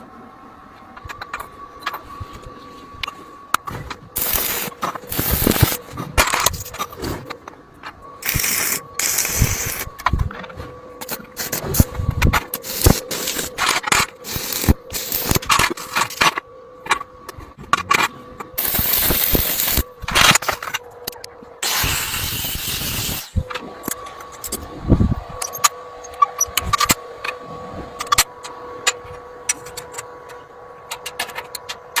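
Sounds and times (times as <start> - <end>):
faint hum: 0.0 - 32.0
metal parts clanking and scraping: 3.1 - 20.8
hissing bursts: 4.2 - 5.8, 8.2 - 9.9, 12.6 - 13.6, 14.2 - 15.5, 18.6 - 19.8, 21.6 - 23.4.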